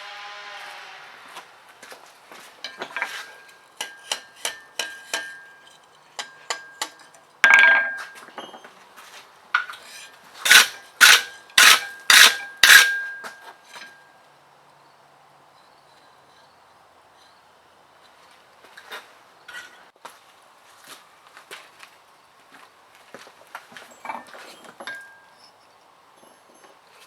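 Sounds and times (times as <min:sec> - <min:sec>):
hammer striking steel on anvil: 0:02.6 - 0:08.2, 0:09.6 - 0:14.0
anvil ringing: 0:03.8 - 0:08.2, 0:10.5 - 0:14.0.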